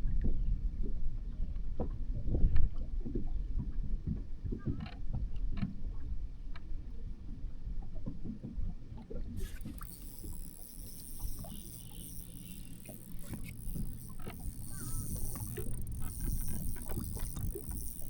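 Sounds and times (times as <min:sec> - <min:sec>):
water sloshing: 0:09.3 - 0:18.0
steady high buzz: 0:09.4 - 0:18.0.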